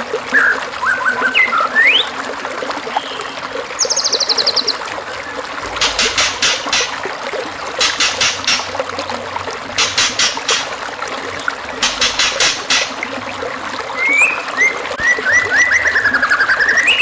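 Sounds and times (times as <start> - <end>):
stream water trickling: 0.0 - 17.0
birdsong: 0.3 - 2.2, 2.9 - 7.0, 11.8 - 13.0, 14.0 - 17.0.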